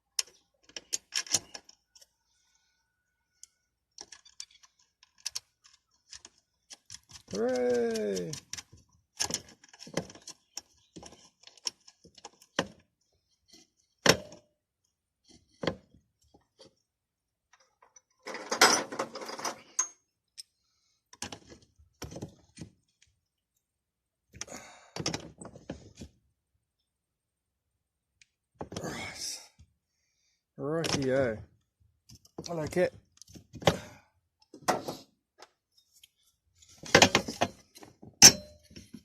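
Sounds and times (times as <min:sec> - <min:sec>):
metal parts and tools rattling: 0:03.9 - 0:12.6, 0:17.6 - 0:20.5, 0:36.6 - 0:39.0.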